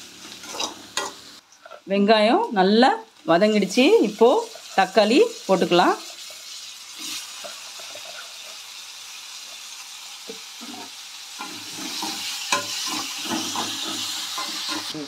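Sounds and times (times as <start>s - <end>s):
tomatoes and onions sizzling in oil: 0.0s - 15.0s
metal spatula scraping a pan: 0.2s - 1.9s, 6.0s - 8.7s, 10.6s - 15.0s.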